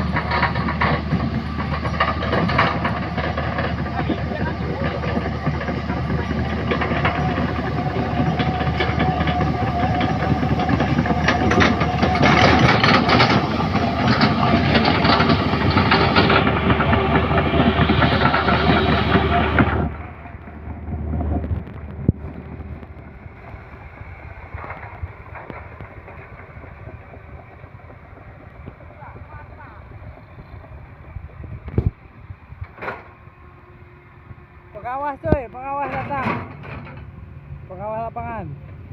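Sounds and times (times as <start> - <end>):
metallic clanking and rattling: 0.0 - 23.1, 32.6 - 33.2, 35.0 - 37.2
heavy machinery engine running: 0.0 - 38.9.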